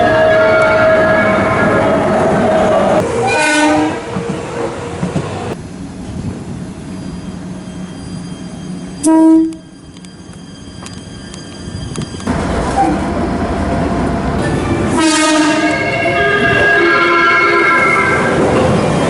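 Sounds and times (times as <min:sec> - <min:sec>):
train running: 0:00.0 - 0:19.0
train horn blasts: 0:03.2 - 0:04.1, 0:09.0 - 0:09.6, 0:14.9 - 0:18.4.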